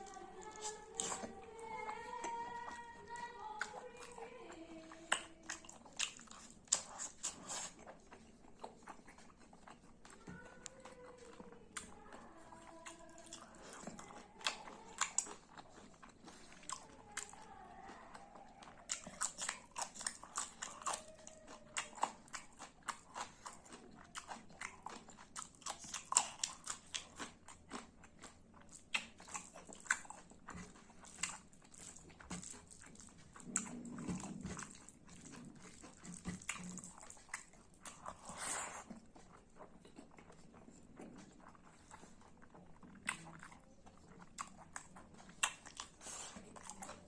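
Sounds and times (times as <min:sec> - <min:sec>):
close chewing and biting: 0:00.0 - 0:47.0
wet mouth clicks and crunches: 0:05.0 - 0:10.8, 0:21.8 - 0:47.0.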